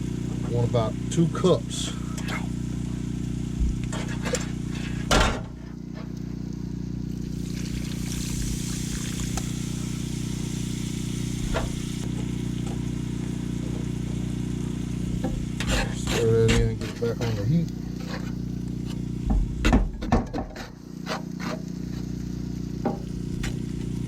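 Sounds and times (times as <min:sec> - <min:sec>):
water pouring into pot hissing: 0:00.0 - 0:05.1, 0:05.8 - 0:16.1
steady low hum: 0:00.0 - 0:21.0
thump: 0:05.1 - 0:05.6, 0:19.3 - 0:20.6
small knock: 0:19.3 - 0:20.7, 0:22.8 - 0:23.1.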